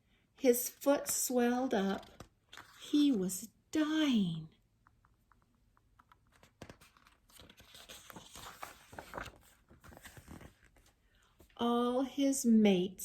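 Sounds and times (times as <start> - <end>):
book pages rustling: 1.8 - 3.2, 4.8 - 11.6.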